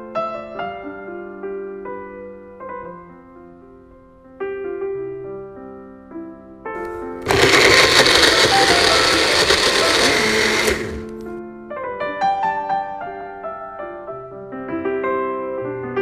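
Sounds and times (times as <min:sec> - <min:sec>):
blender running: 0:06.9 - 0:11.2.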